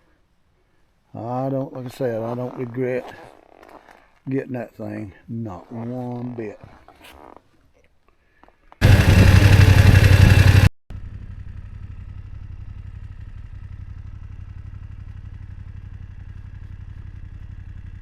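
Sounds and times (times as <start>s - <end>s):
motorcycle engine idling: 8.8s - 18.0s
motorcycle engine revving: 8.8s - 18.0s.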